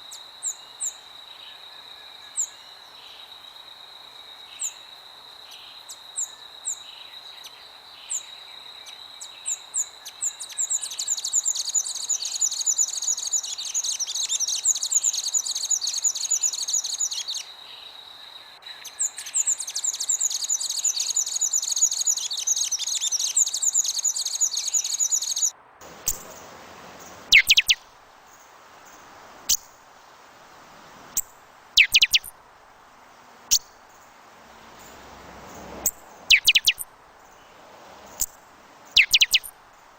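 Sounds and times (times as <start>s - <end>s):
soft ambient hiss: 0.0s - 39.9s
birds chirping and calling: 23.8s - 27.8s, 28.4s - 32.3s, 33.3s - 39.5s
sharp falling chirps: 25.8s - 27.8s, 30.4s - 32.3s, 33.5s - 38.3s, 38.9s - 39.5s.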